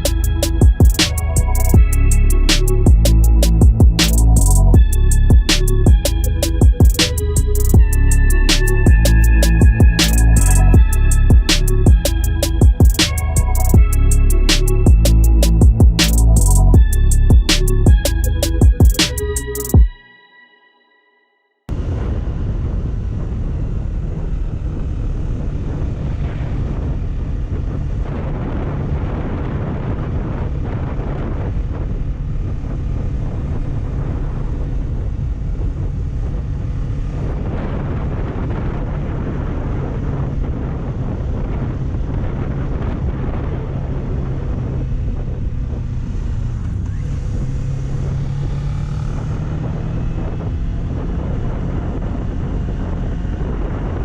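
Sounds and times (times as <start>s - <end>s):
motorcycle engine running: 0.0s - 19.1s, 44.9s - 54.0s
wind buffeting on microphone: 21.7s - 54.0s.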